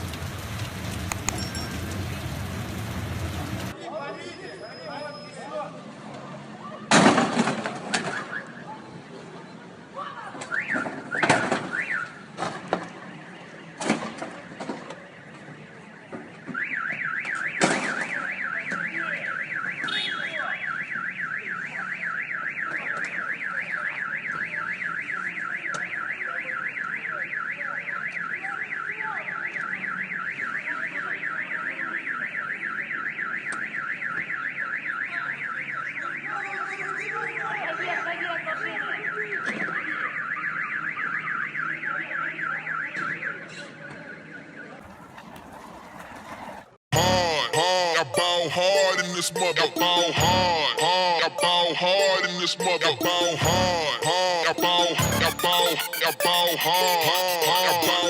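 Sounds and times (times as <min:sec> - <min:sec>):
warbling electronic alarm: 0:47.0 - 0:58.0.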